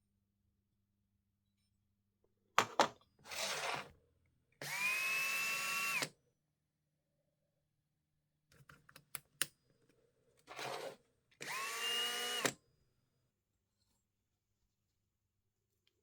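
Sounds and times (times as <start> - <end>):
small electric power tool: 4.6 - 6.1, 10.5 - 12.6.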